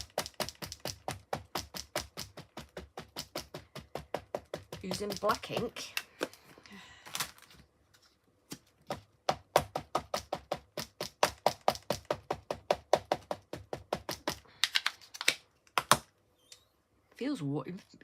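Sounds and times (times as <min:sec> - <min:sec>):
ink pad tapping rubber stamp: 0:00.0 - 0:06.3, 0:08.8 - 0:14.4.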